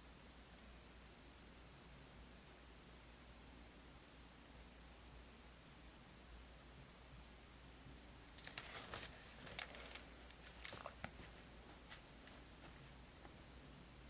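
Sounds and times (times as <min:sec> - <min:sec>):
crinkling rustles: 0:08.3 - 0:13.0.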